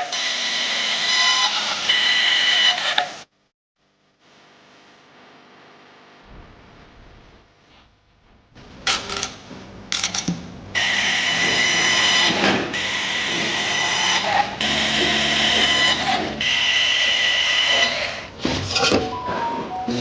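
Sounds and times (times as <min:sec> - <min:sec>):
power tool whining: 0:10.8 - 0:18.3.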